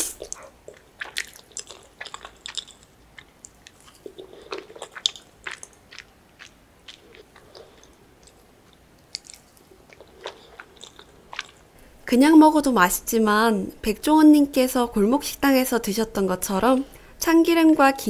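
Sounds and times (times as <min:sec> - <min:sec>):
wet mouth clicks and smacks: 0:00.0 - 0:11.7
close-miked chewing: 0:00.0 - 0:11.8.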